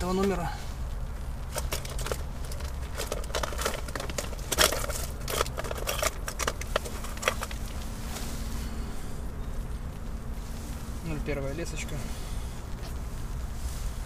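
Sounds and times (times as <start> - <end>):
hands rustling fishing tackle packaging: 1.4 - 9.8.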